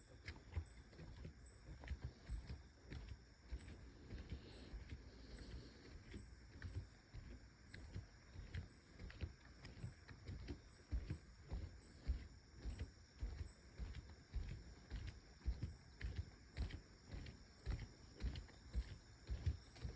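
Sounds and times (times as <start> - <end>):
footsteps on trail: 0.0 - 19.9.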